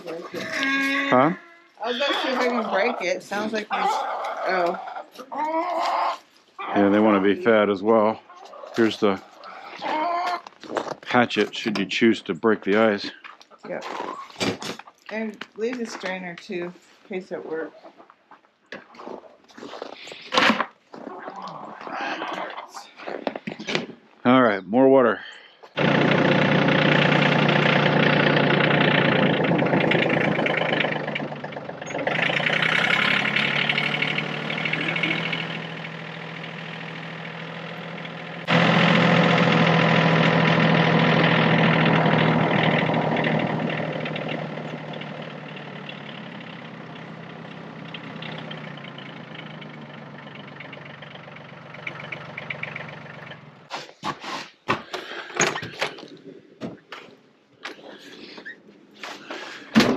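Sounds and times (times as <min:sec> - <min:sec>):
tractor diesel engine running: 0:00.0 - 0:04.8, 0:06.7 - 0:08.2, 0:08.8 - 0:09.2, 0:25.8 - 0:53.7
sharp knocks and clatter: 0:25.9 - 0:34.7.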